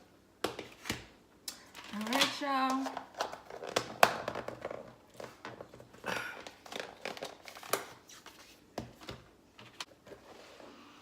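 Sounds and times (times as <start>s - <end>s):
crinkling rustles: 1.7s - 8.6s.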